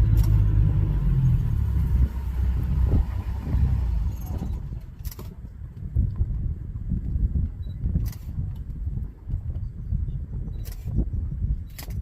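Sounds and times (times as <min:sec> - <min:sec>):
vehicle engine idling: 0:00.0 - 0:05.5
sharp click: 0:10.6 - 0:11.0, 0:11.7 - 0:12.0.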